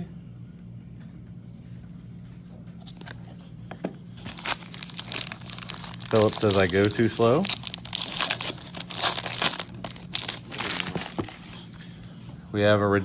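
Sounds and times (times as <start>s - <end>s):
steady low hum: 0.0s - 13.0s
plastic crinkling and crackling: 4.2s - 11.5s.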